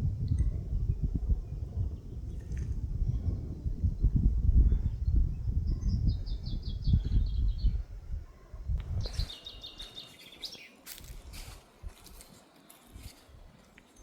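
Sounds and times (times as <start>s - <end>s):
low rumble on microphone: 0.0s - 9.9s
songbird trilling: 9.0s - 10.8s.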